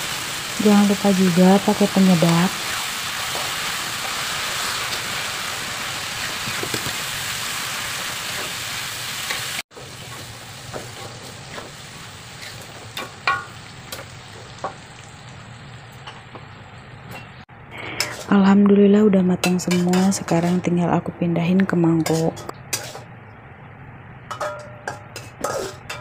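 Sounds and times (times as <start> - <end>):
spice paste sizzling in oil: 0.0 - 16.9
quieter frying: 0.0 - 20.8, 21.7 - 26.0
metal spatula scraping wok: 17.9 - 18.4, 22.0 - 23.1, 24.3 - 26.0.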